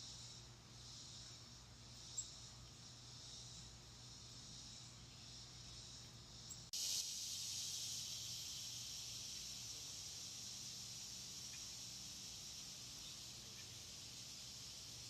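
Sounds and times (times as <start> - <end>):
insects chorus: 0.0 - 15.0.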